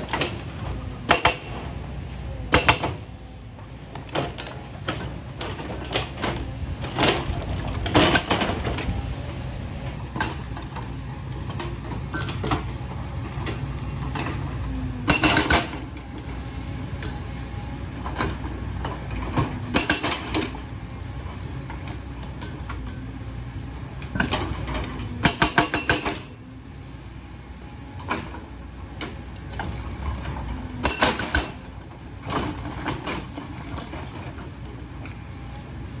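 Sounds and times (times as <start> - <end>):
excavator diesel engine running: 0.0 - 36.0
metal clanks and scraping: 3.9 - 9.0, 9.9 - 16.0, 18.0 - 20.6, 29.5 - 35.2.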